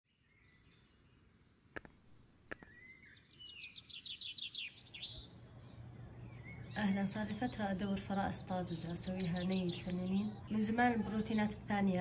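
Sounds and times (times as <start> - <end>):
birds chirping: 0.1 - 12.0
short sharp clicks: 1.7 - 2.8.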